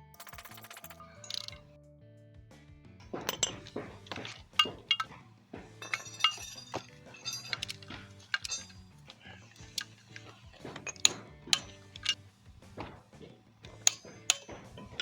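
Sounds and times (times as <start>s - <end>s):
quiet background music: 0.0s - 15.0s
metal tools clinking: 0.2s - 1.6s, 3.2s - 15.0s.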